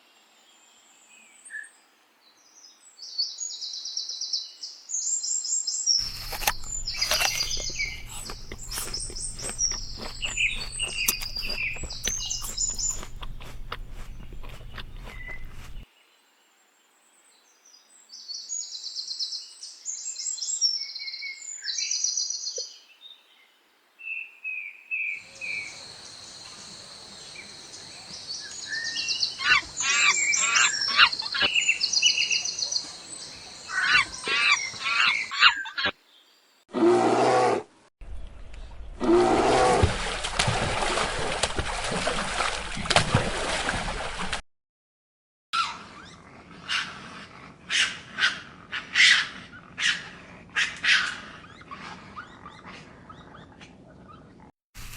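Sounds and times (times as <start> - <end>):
bird chirping and twittering: 5.9 - 15.8, 27.2 - 35.9.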